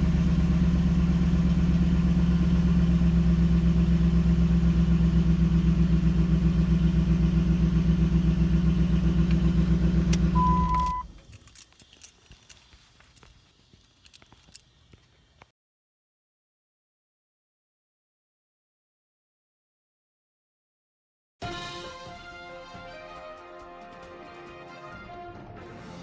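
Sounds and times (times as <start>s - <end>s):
pickup engine idling: 0.0s - 11.4s
short high beep: 10.4s - 11.1s.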